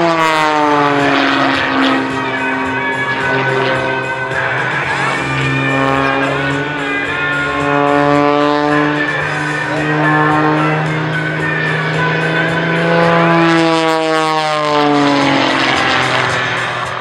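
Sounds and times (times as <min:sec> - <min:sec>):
propeller plane engine droning: 0:00.0 - 0:17.0.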